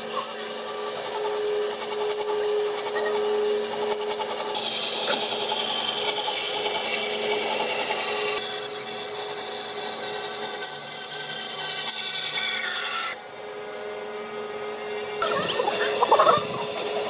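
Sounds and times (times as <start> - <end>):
power tool sanding wood: 0.0 - 12.4, 15.2 - 17.0.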